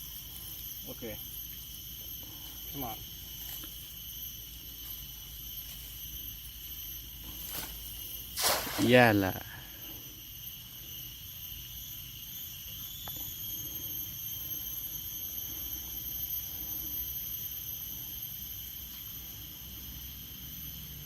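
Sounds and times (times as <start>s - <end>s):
insects droning in chorus: 0.0s - 21.0s.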